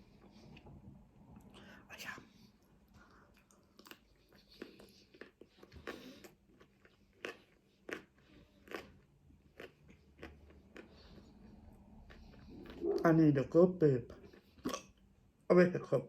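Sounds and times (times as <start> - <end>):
person chewing flatbread: 3.0 - 13.2, 14.1 - 15.2.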